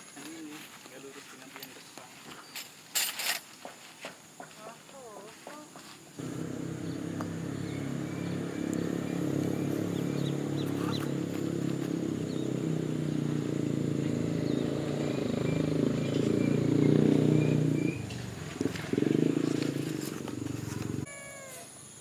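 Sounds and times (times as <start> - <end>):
small motor buzzing: 6.2 - 21.1.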